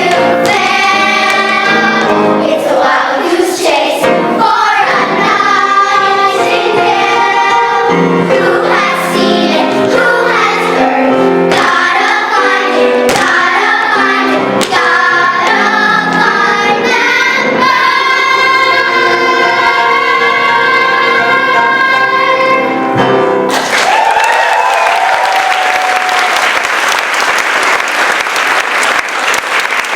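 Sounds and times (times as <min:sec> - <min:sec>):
children's chorus singing: 0:00.0 - 0:23.5
musical accompaniment: 0:00.0 - 0:24.0.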